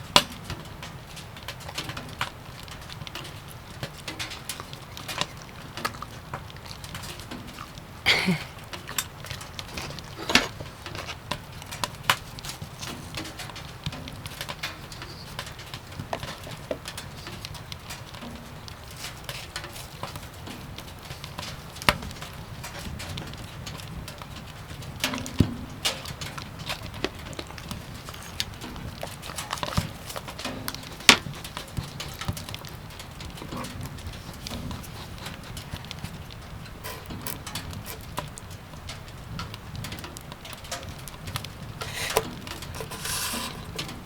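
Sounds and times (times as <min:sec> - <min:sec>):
firewood crackling and popping: 0:00.0 - 0:44.0.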